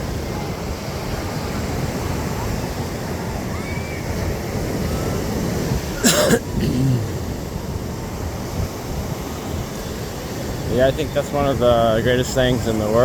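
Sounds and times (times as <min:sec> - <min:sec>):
surf: 0:00.0 - 0:13.0
wind noise on microphone: 0:00.0 - 0:13.0
person coughing: 0:06.0 - 0:07.1.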